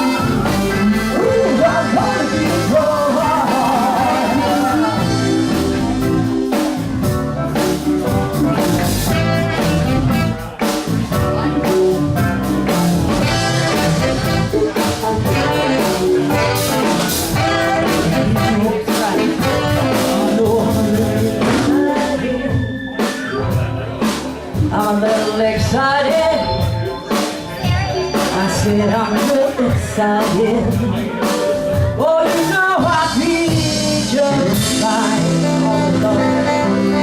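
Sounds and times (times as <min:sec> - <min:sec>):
bass: 0:00.0 - 0:37.0
drums: 0:00.0 - 0:37.0
guitar: 0:00.0 - 0:37.0
keyboards: 0:00.0 - 0:37.0
saxophones: 0:08.2 - 0:10.6, 0:13.2 - 0:20.5, 0:34.7 - 0:37.0.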